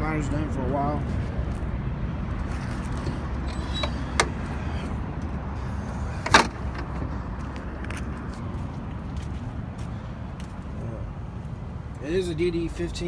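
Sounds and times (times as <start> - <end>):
truck hood metallic clank: 3.0 - 4.9, 6.2 - 6.9.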